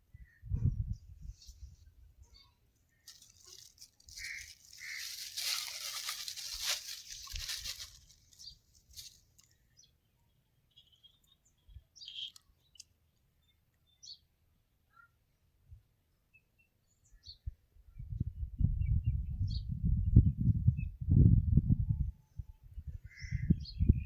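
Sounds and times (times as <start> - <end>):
birds chirping: 2.2 - 15.2
rustling crackly hiss: 3.0 - 9.6.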